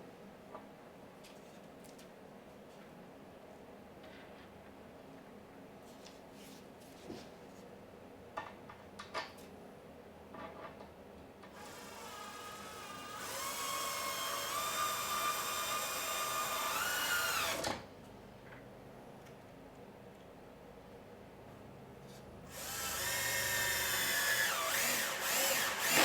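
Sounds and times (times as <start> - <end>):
power drill driving screw: 11.6 - 17.8, 22.5 - 26.0.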